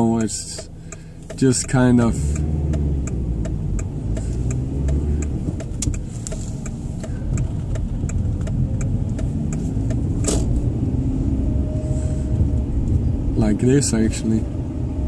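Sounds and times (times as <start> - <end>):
rapid even ticking: 0.0 - 10.2
engine and tyres rumbling: 0.0 - 15.0.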